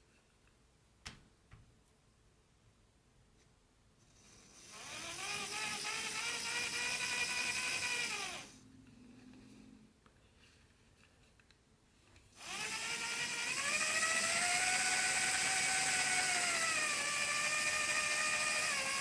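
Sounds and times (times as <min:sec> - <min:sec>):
model train motor whining: 0:04.6 - 0:08.5, 0:12.4 - 0:19.0.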